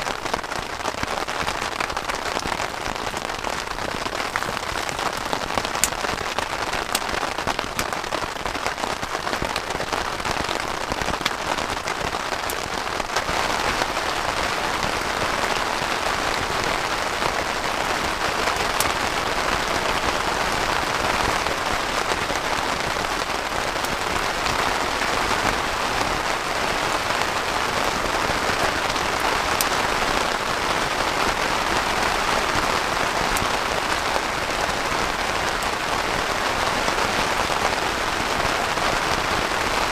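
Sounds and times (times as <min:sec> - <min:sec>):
heavy rain: 0:00.0 - 0:39.9
raindrop ticks: 0:01.5 - 0:12.7.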